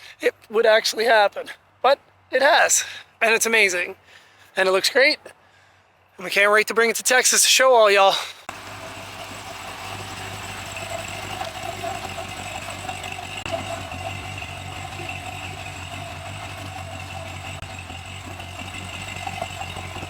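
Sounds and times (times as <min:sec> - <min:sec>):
vehicle engine idling: 0:08.5 - 0:20.0.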